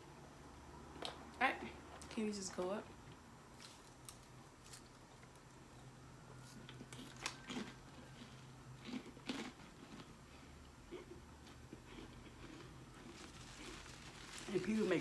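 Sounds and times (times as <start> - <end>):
person chewing crunchy chips: 6.4 - 15.0.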